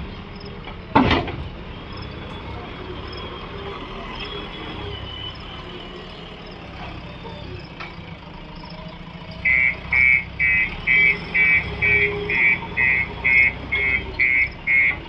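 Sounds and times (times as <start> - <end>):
diesel engine running: 0.0 - 15.0
reversing alarm beeping: 1.8 - 7.8, 9.2 - 15.0.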